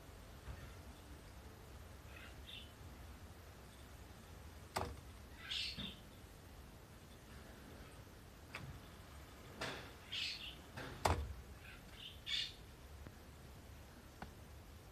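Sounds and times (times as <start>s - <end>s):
high bird chirps: 5.3s - 6.2s, 10.0s - 10.7s, 11.6s - 12.6s.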